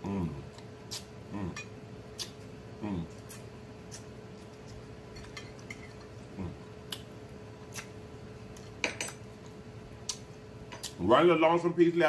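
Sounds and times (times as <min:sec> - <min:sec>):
person humming mm: 0:00.0 - 0:01.6, 0:02.8 - 0:03.2, 0:06.3 - 0:06.6
chewing and mouth smacks: 0:00.5 - 0:01.1, 0:02.1 - 0:02.4, 0:03.1 - 0:08.8, 0:09.4 - 0:11.0.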